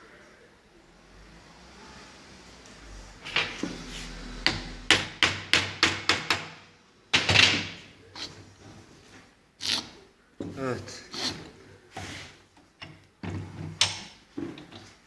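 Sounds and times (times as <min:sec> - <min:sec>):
hammer strikes on metal: 0:04.4 - 0:06.6.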